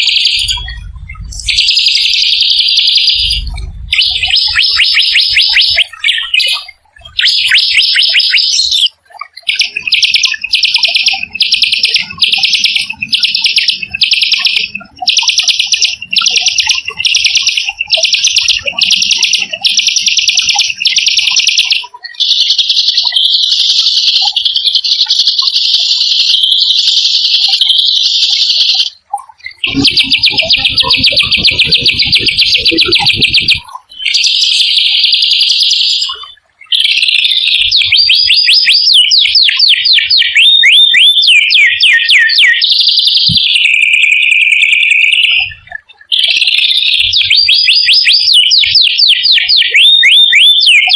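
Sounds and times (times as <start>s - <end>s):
songbird harsh trilling: 0.0s - 25.6s, 27.4s - 45.5s
low rumble: 0.4s - 1.7s, 3.2s - 4.5s.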